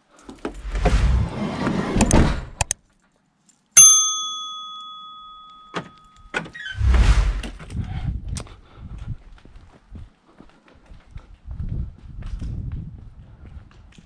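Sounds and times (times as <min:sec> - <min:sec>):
bright metallic ring: 0:03.8 - 0:06.2.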